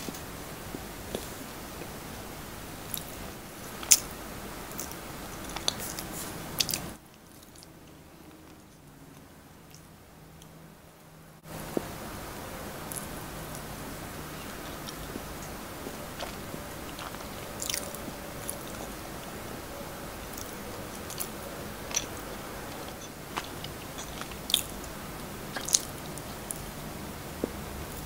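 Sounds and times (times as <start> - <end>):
chewing with crisp crunches: 2.8 - 4.1, 4.7 - 10.5, 12.8 - 28.0.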